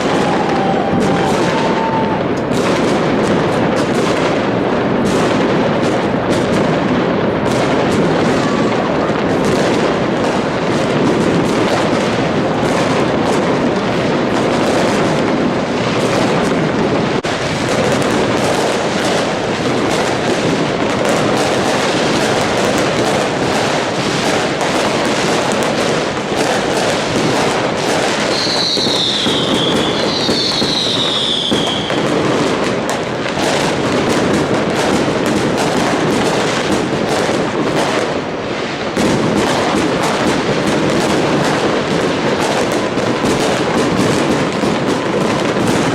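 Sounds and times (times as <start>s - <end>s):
falling firework whistles: 0.0s - 2.9s, 28.2s - 32.1s
fireworks bangs and crackling: 0.0s - 45.9s.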